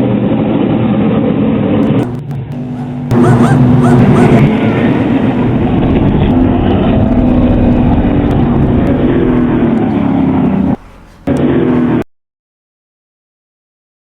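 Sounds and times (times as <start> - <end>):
road and wind noise: 0.0 - 12.0
car engine running: 1.8 - 12.0.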